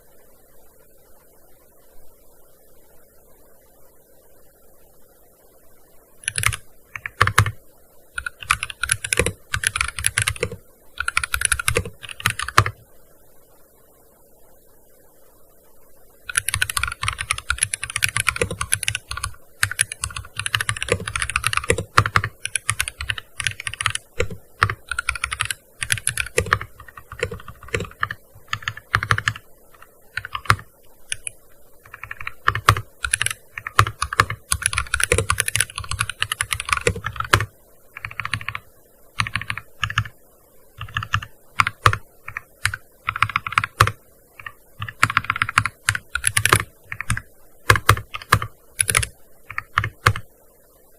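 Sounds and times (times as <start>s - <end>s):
clicky keyboard typing: 6.2s - 7.6s, 8.2s - 12.8s, 16.3s - 38.6s, 39.2s - 40.1s, 40.8s - 50.2s.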